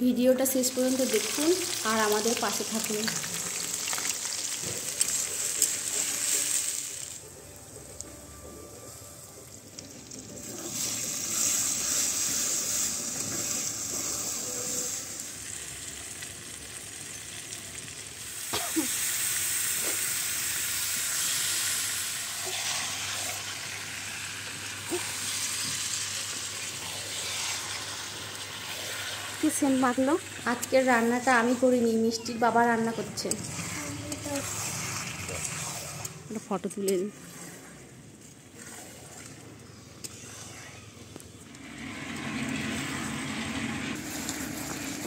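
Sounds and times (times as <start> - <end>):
chicken sizzling in hot oil: 0.5 - 7.2, 9.8 - 36.2, 41.6 - 45.0
metal spatula stirring: 33.0 - 37.9.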